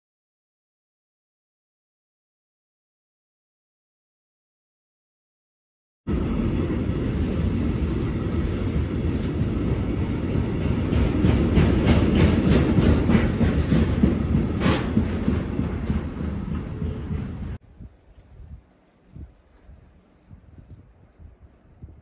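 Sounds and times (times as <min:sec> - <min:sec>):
freight train wheels rumbling: 0:06.1 - 0:22.0
wheels clacking over rail joints: 0:06.5 - 0:17.6.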